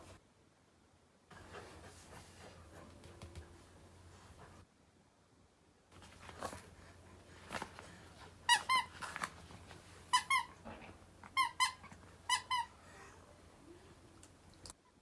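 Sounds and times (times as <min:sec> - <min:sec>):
rustling: 0:05.9 - 0:12.4
squeaky toy squeaking: 0:08.5 - 0:09.0, 0:10.1 - 0:10.6, 0:11.4 - 0:12.7.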